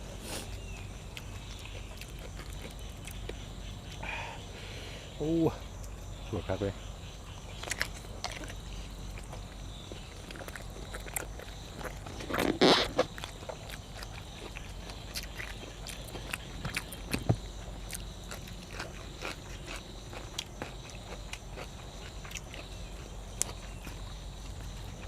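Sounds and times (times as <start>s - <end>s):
loud crunch or slurp: 0.2s - 0.6s, 12.1s - 13.2s
person biting and chewing: 7.6s - 9.4s, 10.0s - 17.2s, 17.9s - 22.7s.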